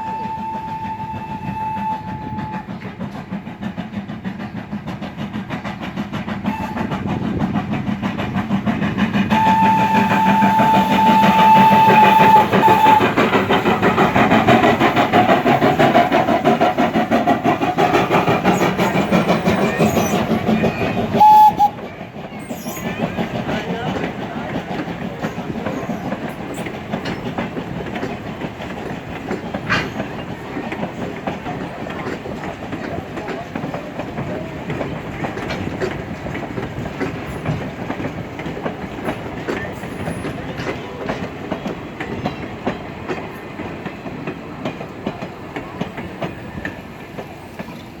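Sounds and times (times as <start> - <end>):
train rolling on track: 0.0 - 48.0
wheels clicking over rail joints: 0.1 - 48.0.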